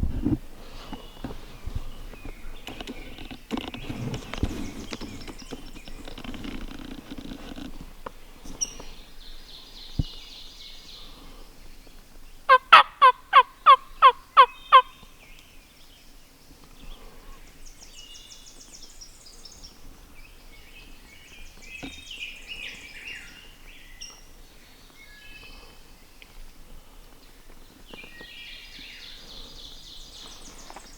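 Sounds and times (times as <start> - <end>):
songbirds chirping faintly: 0.0 - 30.9
turkey yelps: 12.5 - 14.9.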